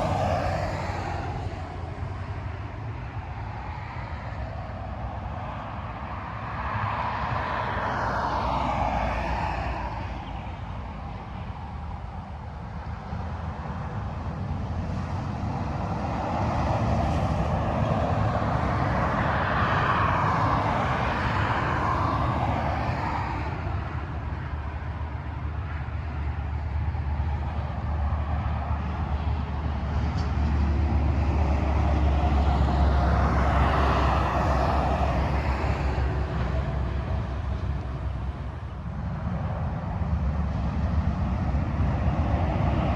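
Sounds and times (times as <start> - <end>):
deep engine drone: 0.0 - 2.2
vehicles passing at speed: 0.0 - 42.9.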